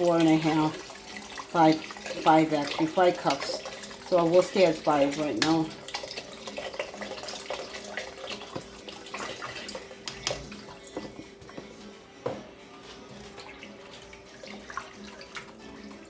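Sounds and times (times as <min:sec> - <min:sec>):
broth pouring into pan: 0:00.4 - 0:10.4.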